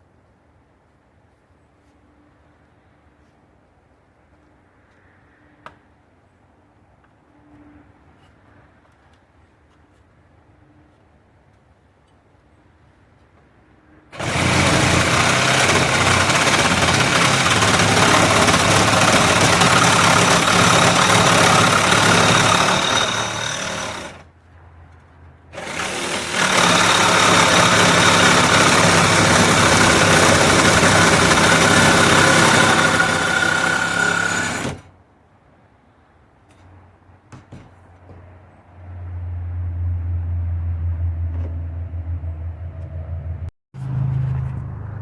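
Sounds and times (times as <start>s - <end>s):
power tool cutting sheet metal: 14.2s - 24.2s, 25.6s - 34.9s.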